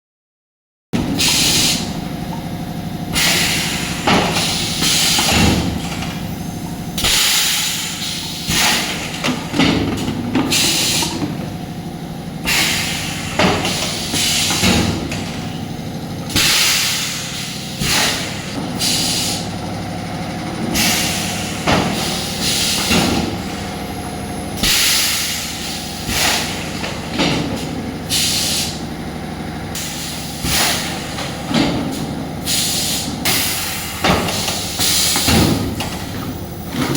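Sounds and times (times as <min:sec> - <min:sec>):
steady machine hum: 0:01.0 - 0:36.9
hissing compressed air blasts: 0:01.1 - 0:02.1, 0:03.0 - 0:09.0, 0:10.5 - 0:11.2, 0:12.4 - 0:15.1, 0:16.3 - 0:19.6, 0:20.7 - 0:23.9, 0:24.6 - 0:26.8, 0:27.5 - 0:28.8, 0:29.8 - 0:31.2, 0:31.9 - 0:35.7.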